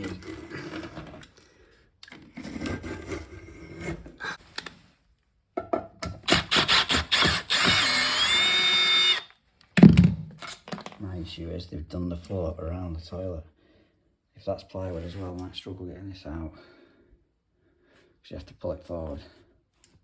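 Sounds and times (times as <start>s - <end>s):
small power tool whining: 6.2s - 9.4s.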